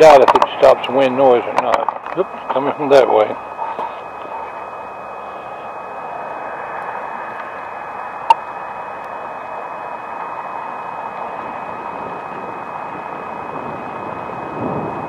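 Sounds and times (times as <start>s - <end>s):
wind on microphone: 10.8s - 15.0s.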